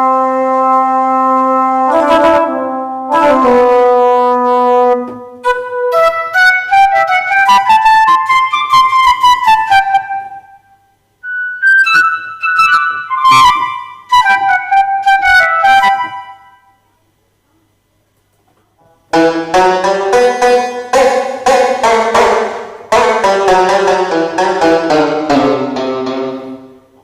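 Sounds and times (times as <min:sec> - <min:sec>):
keyboard playing melodic notes: 0:00.0 - 0:10.5, 0:11.2 - 0:16.6, 0:19.1 - 0:26.9.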